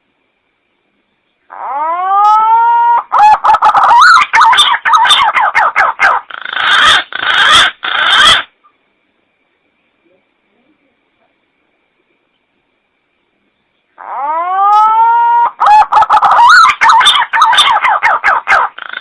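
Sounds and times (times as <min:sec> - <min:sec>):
pigeon lure call whistling: 0:14.0 - 0:19.0.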